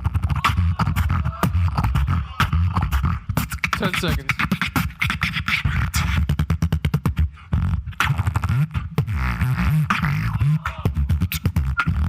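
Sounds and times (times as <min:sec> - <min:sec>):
wobbling low bass tone: 0:00.0 - 0:04.5
beatboxing percussive mouth hits: 0:00.0 - 0:12.0.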